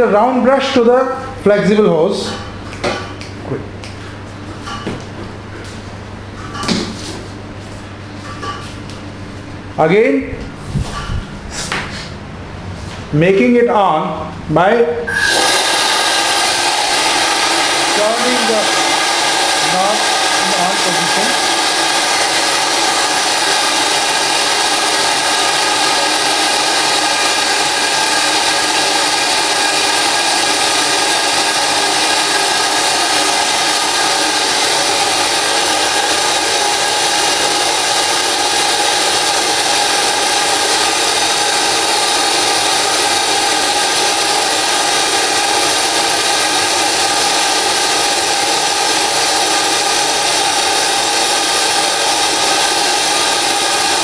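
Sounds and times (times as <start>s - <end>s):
vacuum cleaner air hissing: 15.1s - 54.0s.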